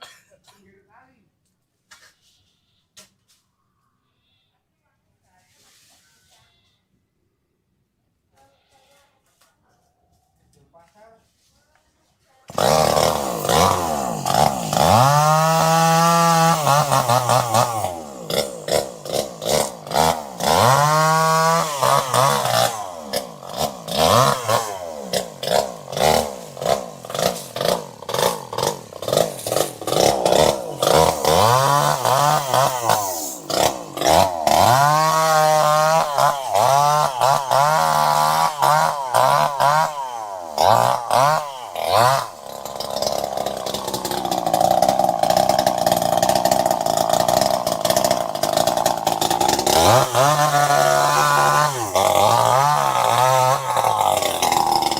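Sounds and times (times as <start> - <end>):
chainsaw engine revving: 12.5 - 54.9.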